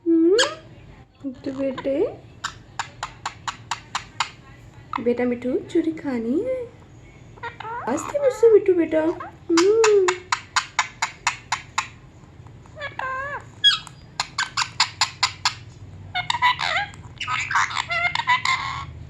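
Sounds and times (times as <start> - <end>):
parrot chattering and clicking: 1.7 - 5.1, 9.1 - 19.0.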